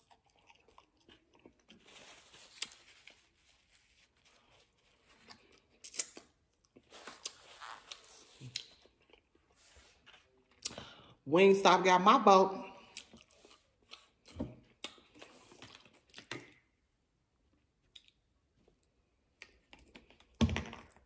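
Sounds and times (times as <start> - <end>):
person biting and chewing: 0.0 - 2.9, 5.2 - 9.5, 12.8 - 16.6.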